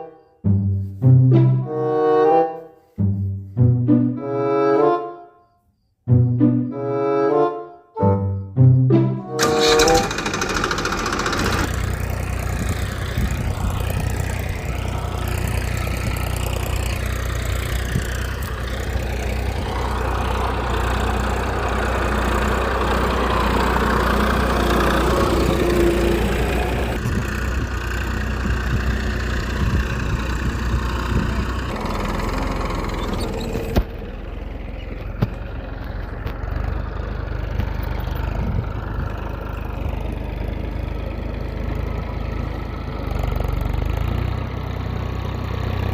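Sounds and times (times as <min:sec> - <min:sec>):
small engine idling: 0:09.4 - 0:45.9.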